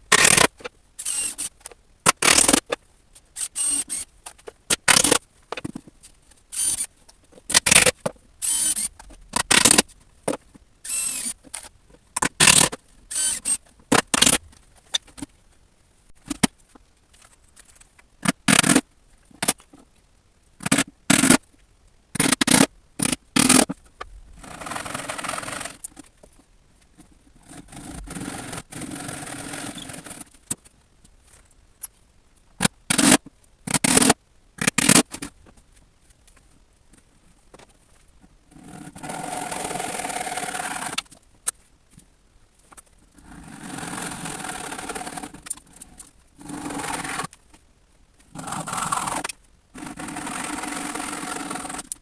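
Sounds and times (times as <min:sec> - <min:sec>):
steady scraping noise: 0:43.1 - 0:47.4, 0:48.2 - 0:52.0.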